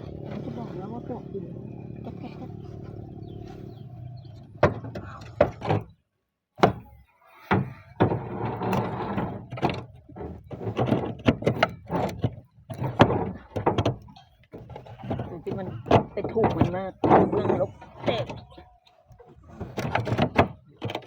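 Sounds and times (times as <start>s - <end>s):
roof tiles knocking and clattering: 4.6s - 6.0s, 7.5s - 21.0s
scraping: 7.5s - 21.0s.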